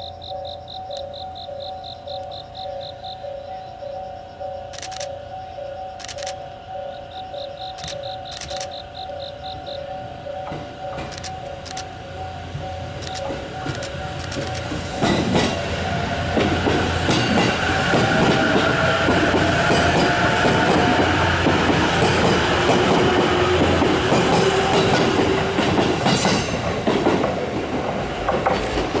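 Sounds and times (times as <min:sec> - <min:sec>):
train wheels clacking on rail joints: 0:07.5 - 0:29.0.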